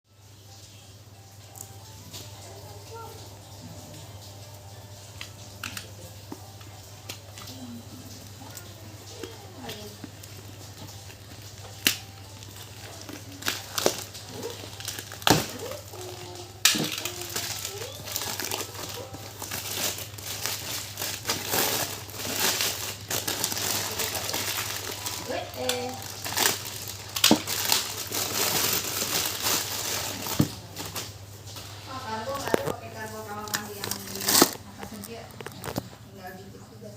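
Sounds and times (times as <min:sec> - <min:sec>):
packaging snaps and taps: 0:05.2 - 0:07.6, 0:09.1 - 0:15.7, 0:16.6 - 0:20.0, 0:27.2 - 0:27.8
packaging crinkling: 0:05.2 - 0:36.1.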